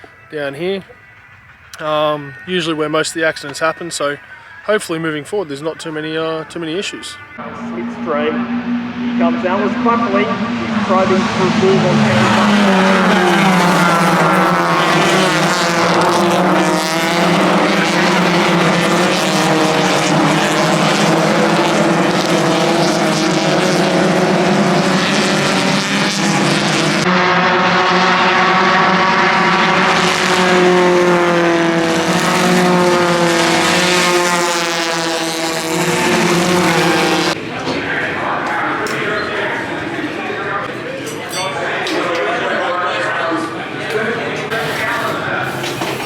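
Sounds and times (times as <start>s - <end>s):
cars changing gear: 6.8s - 27.0s
race car engines at high revs: 7.2s - 40.9s, 42.1s - 46.0s.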